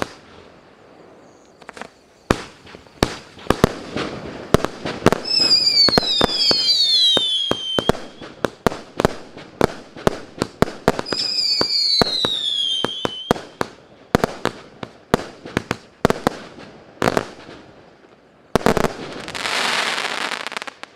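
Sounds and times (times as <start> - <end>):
loud firework bangs: 0.0 - 0.6, 1.6 - 17.7
falling firework whistles: 0.0 - 17.6, 18.6 - 20.9
firework launch shots and bursts: 1.7 - 17.7.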